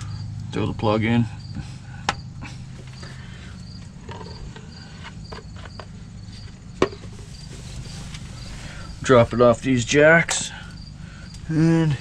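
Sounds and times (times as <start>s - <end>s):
crickets chirping: 0.0s - 12.0s
low hum: 0.0s - 12.0s.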